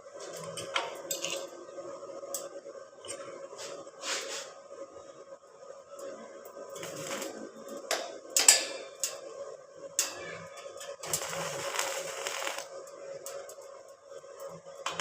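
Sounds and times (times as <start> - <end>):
faint steady hum: 0.0 - 15.0
metal scraping: 10.0 - 12.6.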